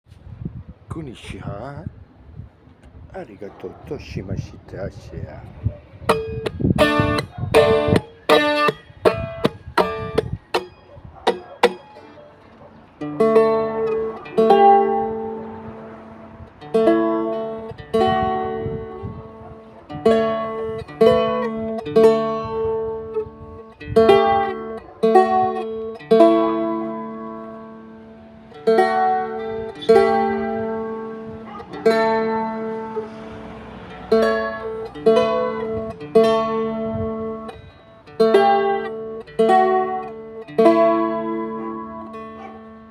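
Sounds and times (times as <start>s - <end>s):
plucked string instrument chords: 6.1s - 42.9s.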